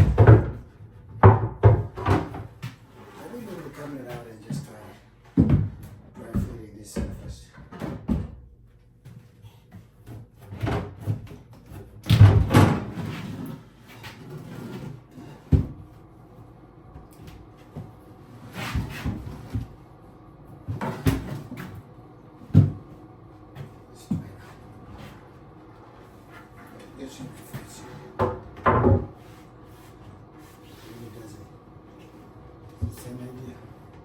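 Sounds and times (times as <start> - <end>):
sink top knocking and thumping: 1.2 - 2.4.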